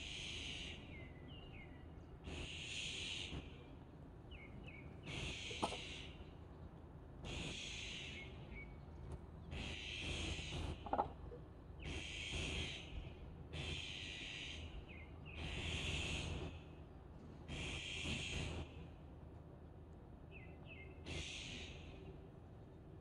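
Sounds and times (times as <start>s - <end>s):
harsh rasping bird calls: 4.3s - 6.4s, 7.2s - 8.8s, 9.4s - 16.6s.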